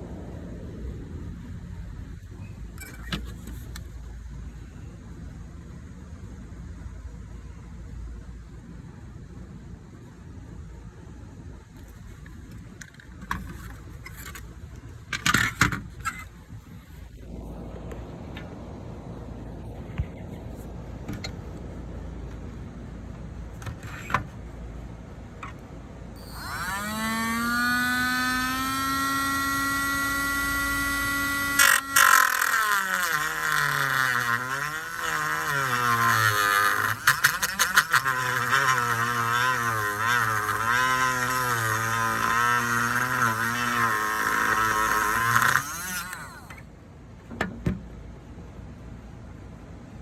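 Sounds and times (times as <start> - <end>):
cut-off disc grinding: 25.4 - 46.7
rotary tool whining: 25.4 - 46.7.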